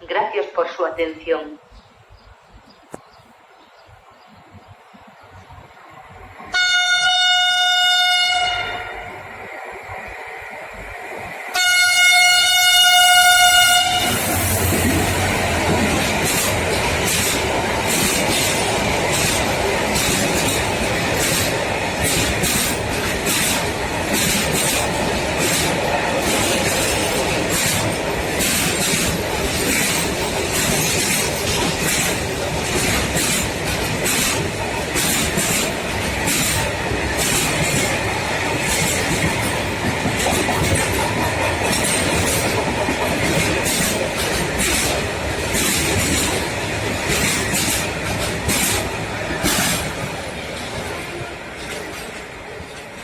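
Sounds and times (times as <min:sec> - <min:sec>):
train rumble: 0:00.0 - 0:53.0
freight train wheels clattering: 0:12.7 - 0:53.0.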